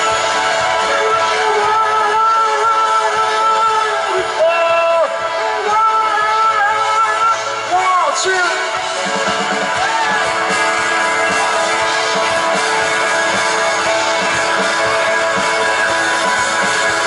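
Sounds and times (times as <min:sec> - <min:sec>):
strummed electric guitar: 0:00.0 - 0:17.0
drum beat: 0:08.7 - 0:17.0.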